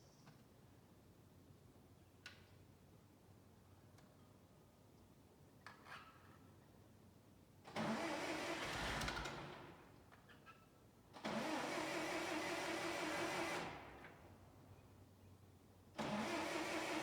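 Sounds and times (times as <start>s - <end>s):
engine cranking on starter: 7.7s - 9.8s, 11.2s - 14.2s, 16.0s - 17.0s.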